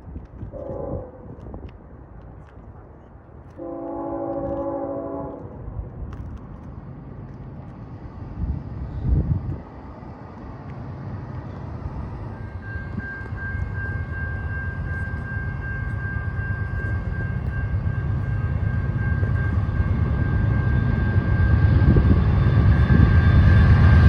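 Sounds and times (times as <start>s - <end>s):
train rumble: 0.0s - 24.0s
locomotive air horn blast: 0.5s - 1.2s, 3.6s - 5.6s
steady high whine: 9.9s - 24.0s.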